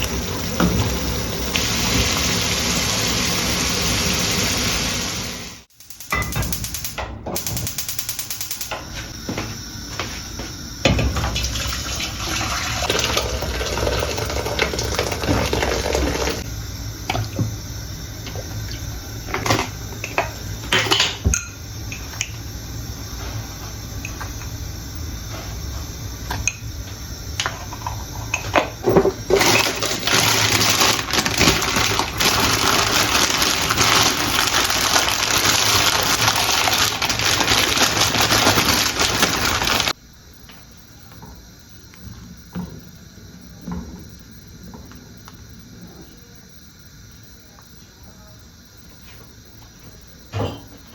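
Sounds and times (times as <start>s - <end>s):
water tap running: 0.0s - 5.7s, 11.2s - 16.5s, 29.1s - 40.0s.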